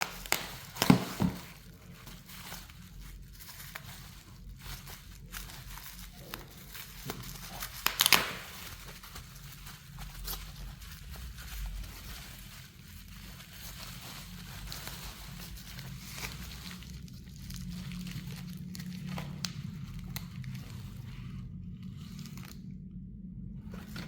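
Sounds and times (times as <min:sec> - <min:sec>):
crinkling and tearing handling noises: 0:00.0 - 0:22.8, 0:23.6 - 0:24.0
steady low hum: 0:00.0 - 0:24.0.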